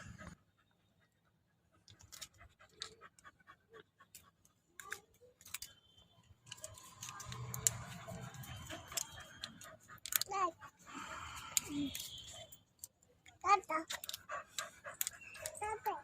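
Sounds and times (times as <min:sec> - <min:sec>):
dog panting: 0:00.0 - 0:05.4, 0:06.6 - 0:12.0, 0:13.7 - 0:16.0
blister pack clicking and crinkling: 0:04.8 - 0:10.3, 0:13.9 - 0:15.6.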